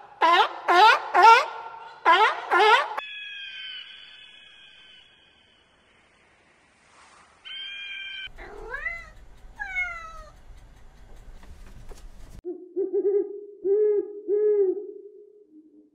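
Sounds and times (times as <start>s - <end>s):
whistle-like call: 3.0s - 5.8s
owl hooting: 7.4s - 9.2s
cat meowing: 7.5s - 10.4s.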